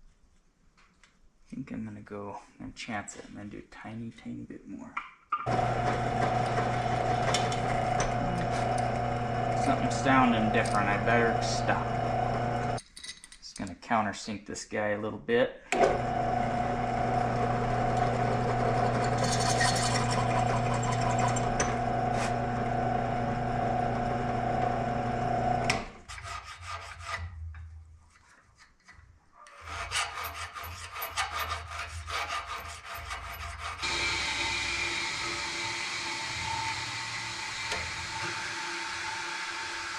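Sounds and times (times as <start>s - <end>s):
electric drill running: 5.5s - 12.8s, 15.9s - 25.7s, 33.8s - 39.9s.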